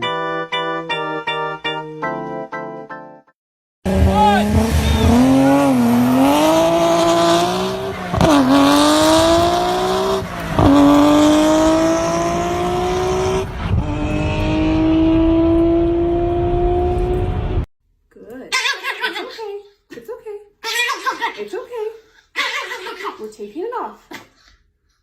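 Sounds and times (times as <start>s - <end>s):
car engine accelerating: 3.9s - 17.7s.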